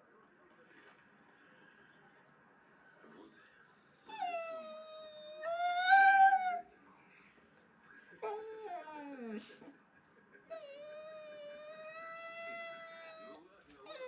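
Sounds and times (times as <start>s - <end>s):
dog howling: 4.0s - 6.7s, 10.6s - 14.0s.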